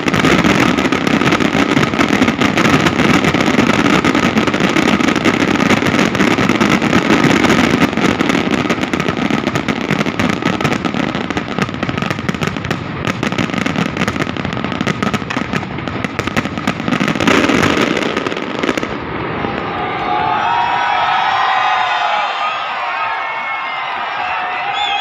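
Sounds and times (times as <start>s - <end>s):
fireworks popping and crackling: 0.0s - 19.7s.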